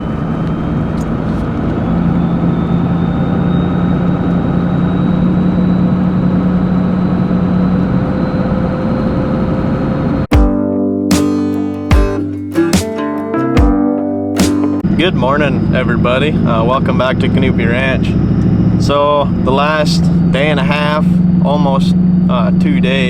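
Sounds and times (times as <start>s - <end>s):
engine humming: 0.0s - 10.3s, 11.2s - 23.0s.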